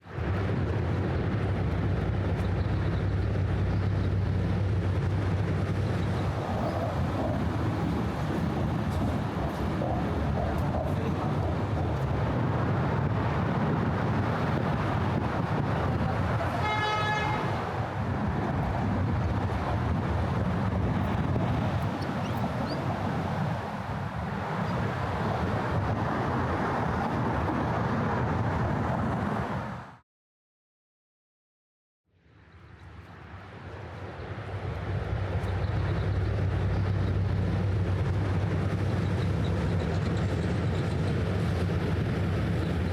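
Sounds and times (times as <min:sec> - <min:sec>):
passing vehicles: 0:00.0 - 0:30.0, 0:32.5 - 0:42.9
low engine hum: 0:00.1 - 0:17.4, 0:32.8 - 0:42.9
car horn honking: 0:16.6 - 0:17.6.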